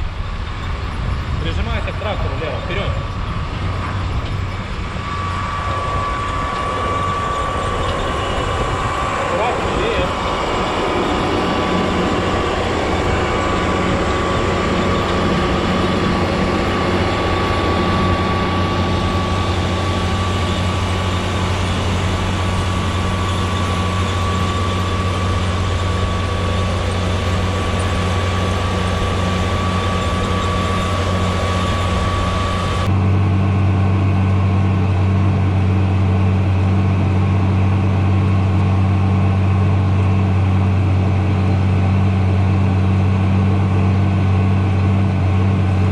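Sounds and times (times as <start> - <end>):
deep steady engine hum: 0.0 - 45.9
tractor engine running: 0.0 - 45.9.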